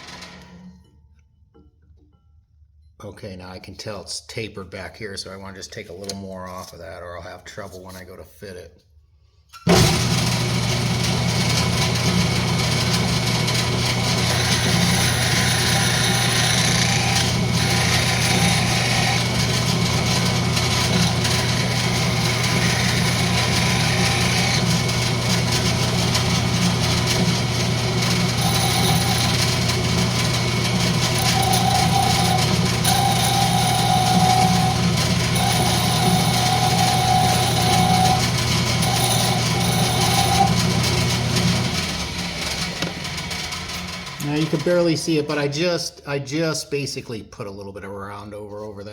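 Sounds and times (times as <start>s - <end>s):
turning tool cutting wood: 9.7s - 45.2s
lathe motor hum: 9.9s - 44.8s.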